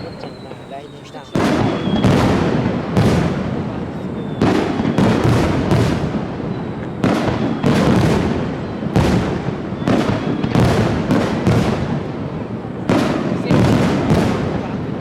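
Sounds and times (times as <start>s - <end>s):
fireworks shells bursting: 0.0s - 14.5s
rolling echo of booms: 0.0s - 15.0s.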